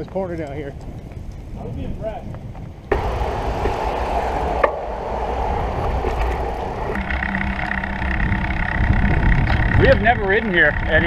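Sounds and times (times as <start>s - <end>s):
wind buffeting microphone: 0.0s - 11.0s
steady pitched hum: 2.9s - 11.0s.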